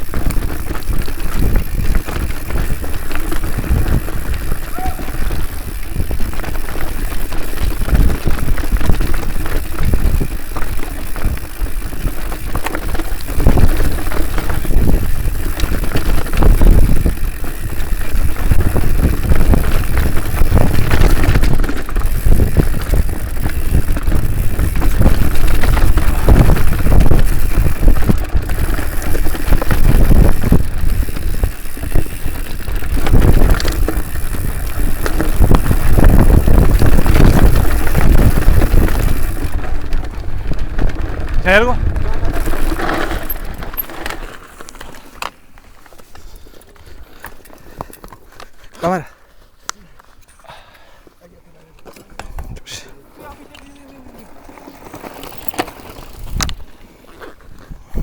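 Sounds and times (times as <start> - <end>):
wind buffeting microphone: 0.0 - 44.2, 56.0 - 56.7
bike knocking and rattling: 0.0 - 49.0, 51.7 - 52.6, 53.2 - 58.0
bike tyres rumbling on dirt: 0.0 - 49.4, 51.8 - 58.0.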